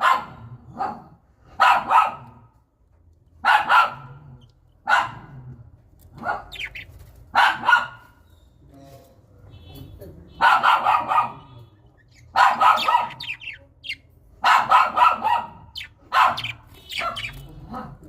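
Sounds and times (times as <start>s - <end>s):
dog barking: 0.0s - 2.5s, 3.4s - 5.4s, 6.2s - 8.2s, 10.4s - 11.6s, 12.3s - 13.6s, 14.4s - 18.0s.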